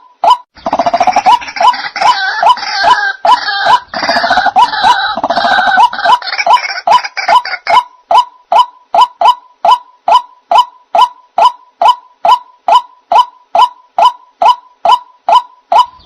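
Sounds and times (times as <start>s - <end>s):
waterhen calling: 0.0s - 16.0s.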